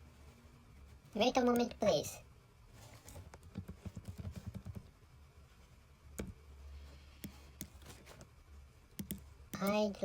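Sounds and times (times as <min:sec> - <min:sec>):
low steady hum: 0:00.0 - 0:10.0
computer keys clicking: 0:03.3 - 0:04.9, 0:06.2 - 0:06.4, 0:08.9 - 0:09.9.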